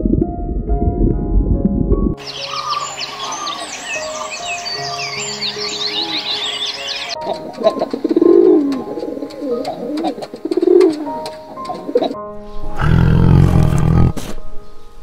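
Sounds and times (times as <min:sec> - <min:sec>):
background music with held notes: 0:00.0 - 0:15.0
bird cooing: 0:07.2 - 0:12.2.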